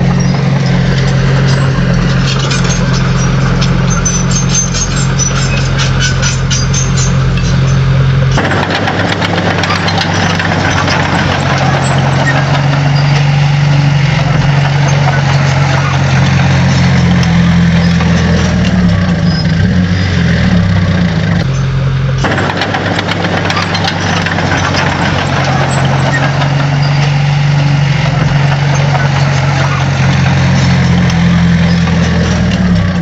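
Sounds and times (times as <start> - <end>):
diesel engine running: 0.0 - 33.0
clicks and crackles: 0.6 - 13.6.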